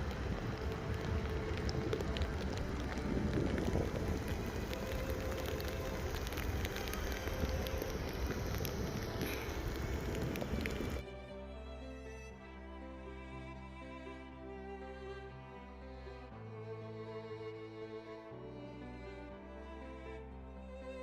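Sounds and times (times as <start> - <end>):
steady rain falling: 0.0 - 11.0
low wind rumble: 0.0 - 21.0.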